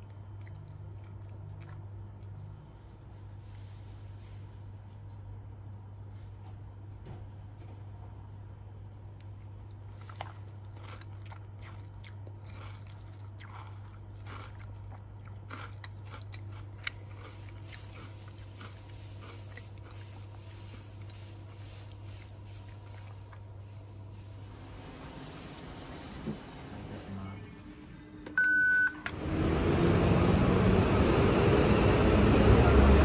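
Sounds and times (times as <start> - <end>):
person chewing crunchy food: 0.0 - 2.7, 9.1 - 24.1
steady low hum: 0.0 - 33.0.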